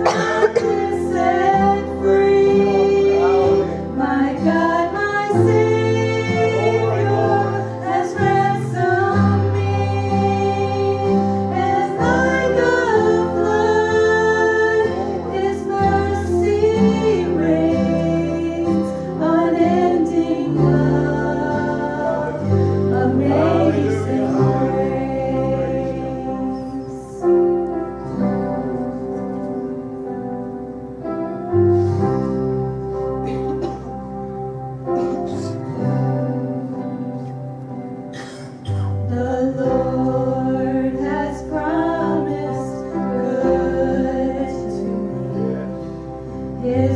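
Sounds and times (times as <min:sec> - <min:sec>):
woman singing: 0:00.0 - 0:27.4, 0:39.0 - 0:45.4, 0:46.6 - 0:46.9
choir singing: 0:00.0 - 0:28.4, 0:39.1 - 0:46.9
sustained keyboard chords: 0:00.0 - 0:46.9
bass notes: 0:15.4 - 0:46.9.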